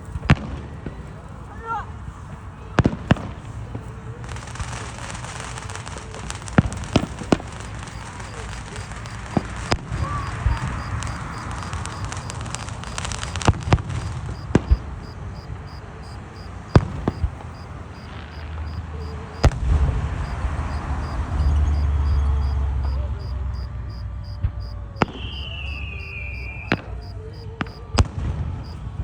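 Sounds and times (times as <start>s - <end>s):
firework cracks and pops: 0.0s - 1.2s, 2.4s - 29.0s
falling firework whistle: 5.6s - 27.9s.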